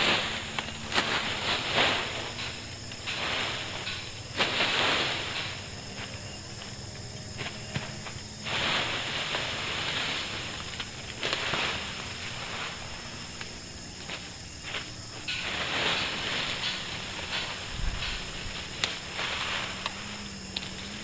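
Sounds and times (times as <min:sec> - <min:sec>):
dry leaves and brush rustling: 0:00.0 - 0:21.0
small clicks and crackles: 0:08.8 - 0:12.7, 0:13.4 - 0:21.0.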